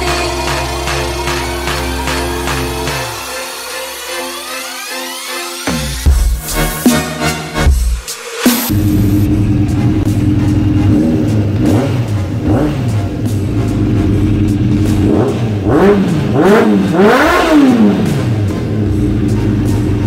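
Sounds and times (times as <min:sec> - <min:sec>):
motorcycle engine idling and revving: 0:08.7 - 0:20.0.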